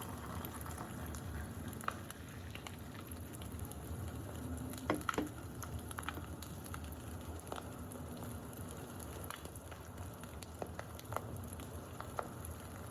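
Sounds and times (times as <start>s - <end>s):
campfire crackling: 0.0s - 12.9s
fire pops and snaps: 0.0s - 12.9s.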